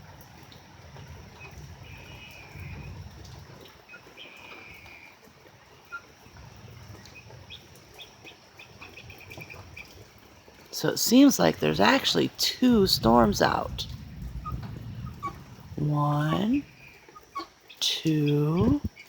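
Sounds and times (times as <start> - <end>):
soft low rumble: 11.4 - 17.4.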